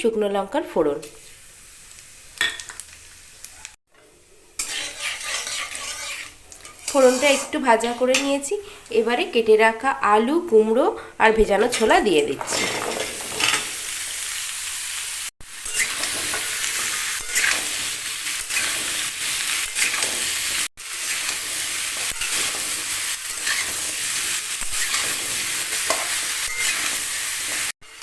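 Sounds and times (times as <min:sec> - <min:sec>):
vegetables sizzling in hot oil: 0:00.6 - 0:10.6, 0:11.4 - 0:28.0
spatula scraping pan: 0:04.5 - 0:08.3, 0:15.7 - 0:20.3, 0:21.1 - 0:24.0, 0:24.6 - 0:27.6.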